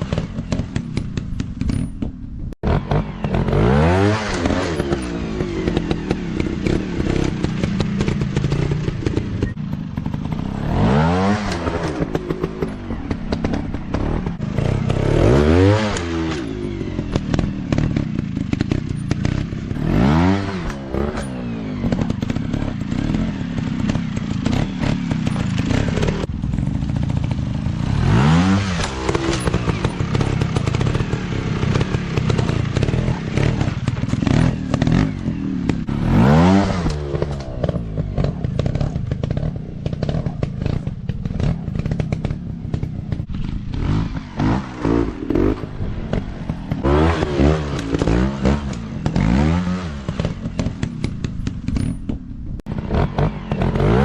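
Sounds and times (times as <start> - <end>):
scattered clatter: 0.0 - 54.0
dirt bike engines revving: 2.6 - 54.0.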